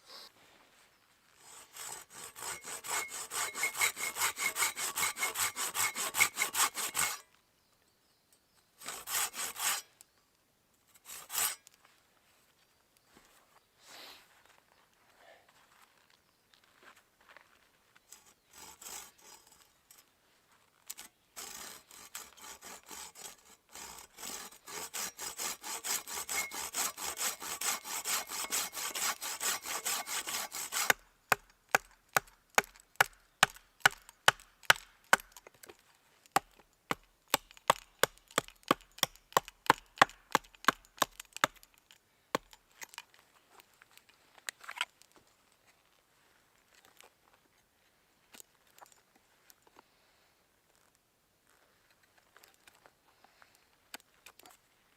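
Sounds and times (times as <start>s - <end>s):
hand saw cutting wood: 1.4s - 7.3s, 8.8s - 9.9s, 10.9s - 11.7s, 18.1s - 19.8s, 20.9s - 35.4s, 36.4s - 42.6s.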